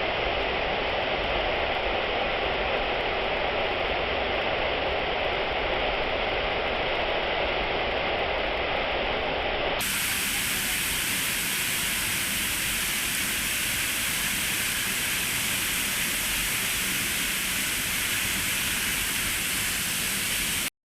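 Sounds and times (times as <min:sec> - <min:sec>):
waterfall rushing: 0:09.8 - 0:20.7.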